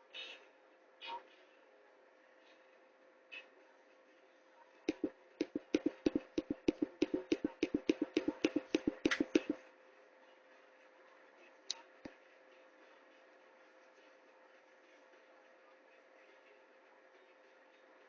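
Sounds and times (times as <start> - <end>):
faint steady hum: 0.0 - 18.0
sharp taps: 4.9 - 9.6.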